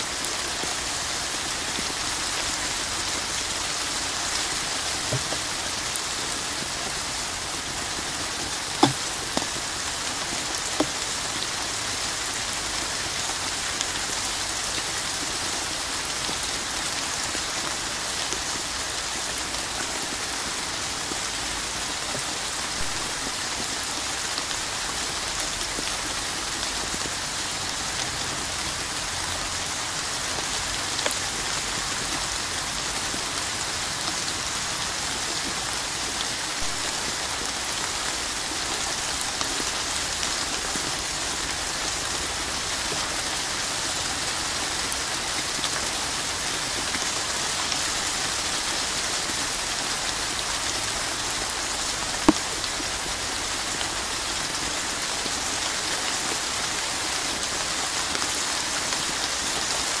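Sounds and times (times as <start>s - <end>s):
rain on a hard surface: 0.0s - 60.0s
sharp tap: 8.8s - 9.5s.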